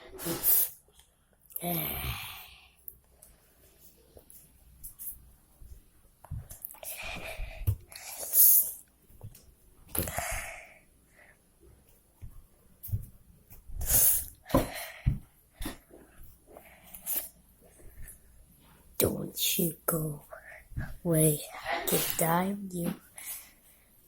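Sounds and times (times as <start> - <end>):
person breathing and mouth noises: 1.5 - 3.0, 6.4 - 8.9, 9.9 - 11.4, 13.8 - 18.3, 19.9 - 23.8.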